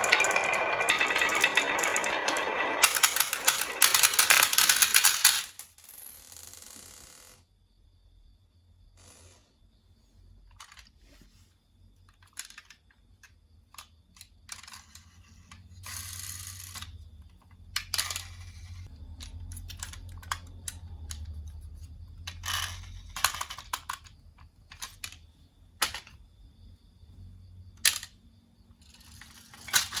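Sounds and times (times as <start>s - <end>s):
marbles rolling rumble: 0.0s - 6.5s
marbles clacking down a marble run: 0.0s - 6.8s, 28.9s - 30.0s.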